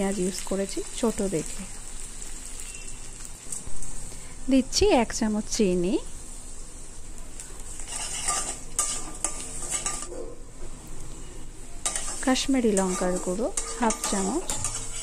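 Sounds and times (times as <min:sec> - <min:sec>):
onions sizzling in hot oil: 0:00.0 - 0:15.0
wooden spatula scraping a pan: 0:07.8 - 0:10.1, 0:11.8 - 0:15.0.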